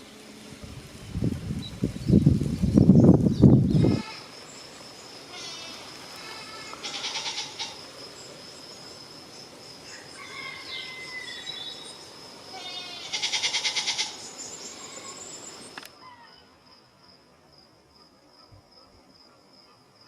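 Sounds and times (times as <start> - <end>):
insect buzzing: 0.0 - 16.8
birds calling: 1.6 - 9.0, 9.9 - 16.4.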